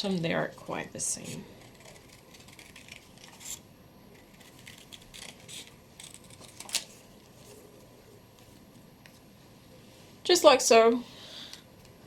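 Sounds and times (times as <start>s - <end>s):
scissors snipping paper: 1.1s - 3.6s, 4.2s - 6.9s.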